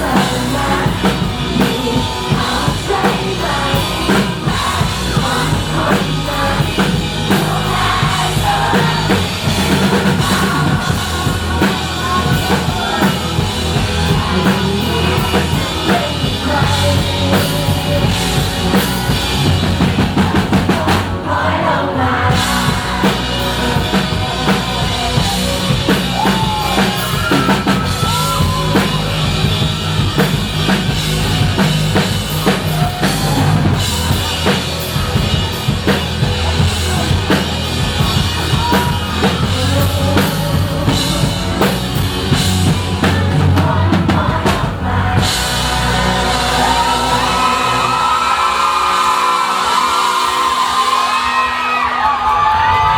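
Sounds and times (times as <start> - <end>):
bass drum beat: 0.0 - 48.4
melodic lead: 0.0 - 51.7
rock band playing live: 0.0 - 52.9.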